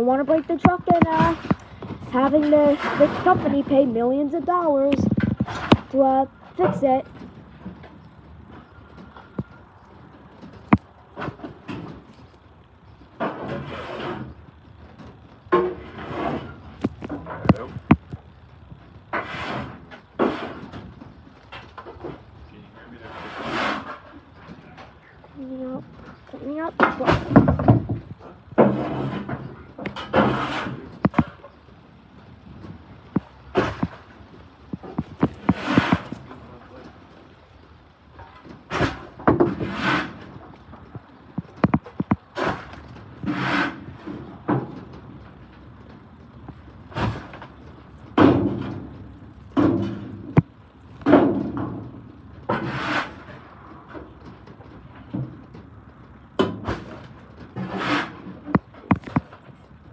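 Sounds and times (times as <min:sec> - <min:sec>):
debris scraping: 0:00.0 - 0:59.9
metal scrapes and clanks: 0:00.2 - 0:03.8, 0:13.2 - 0:14.4, 0:15.5 - 0:17.7, 0:19.1 - 0:20.8, 0:22.8 - 0:25.0, 0:28.6 - 0:31.4, 0:35.2 - 0:36.4, 0:42.4 - 0:44.6, 0:51.0 - 0:54.0, 0:57.6 - 0:58.5.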